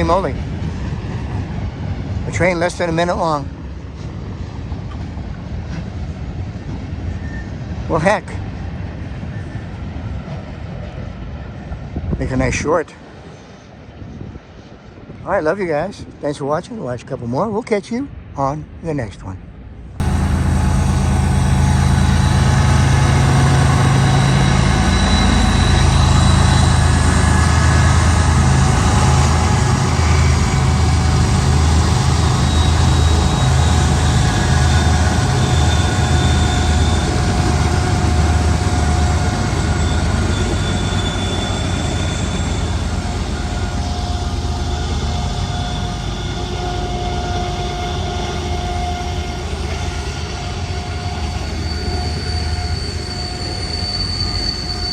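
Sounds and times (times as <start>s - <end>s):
freight train passing: 0.0s - 54.9s
train wheel squeals: 6.7s - 11.8s, 20.0s - 54.9s
locomotive engine drone: 20.0s - 54.9s.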